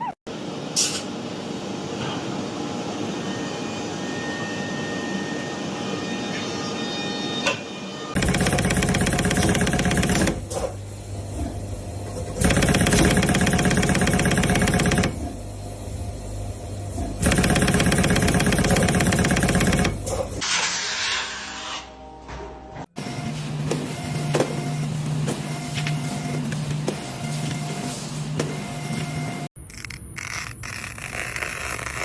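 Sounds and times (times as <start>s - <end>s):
fast mechanical pulsing: 8.2s - 10.6s, 12.4s - 15.3s, 17.2s - 20.4s.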